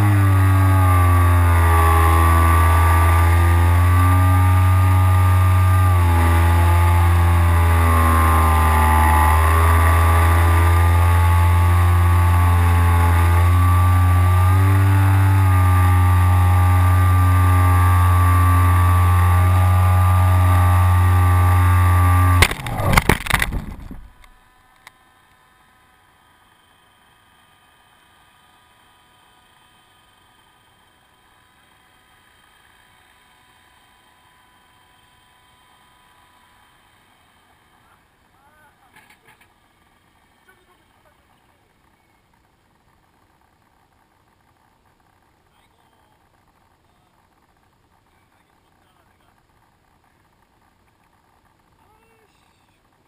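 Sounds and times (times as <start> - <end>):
model plane motor droning: 0.0 - 46.7
plane crashing into pole: 22.3 - 24.4.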